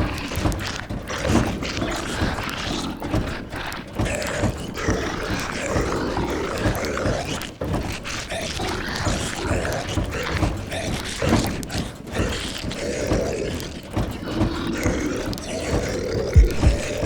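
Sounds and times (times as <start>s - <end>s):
zombie groans and moans: 0.0s - 17.0s
deep heartbeat thumps: 16.4s - 17.0s.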